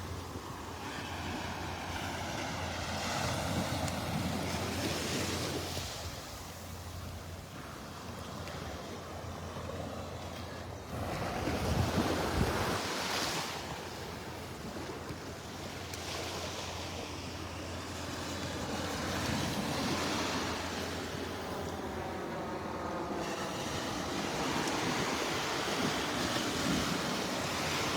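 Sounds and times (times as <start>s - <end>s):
wind buffeting microphone: 10.9s - 15.3s
surf washing onto beach: 10.9s - 27.9s.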